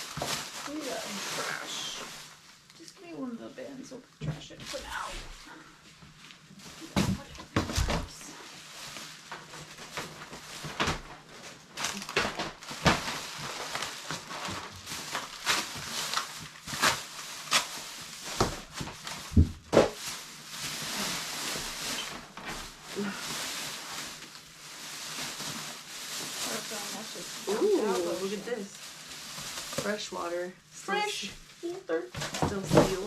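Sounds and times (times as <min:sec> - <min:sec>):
plastic bags rustling: 0:00.0 - 0:33.0
items knocking and clattering: 0:06.8 - 0:08.2, 0:09.3 - 0:15.9, 0:18.3 - 0:20.1, 0:32.2 - 0:33.0.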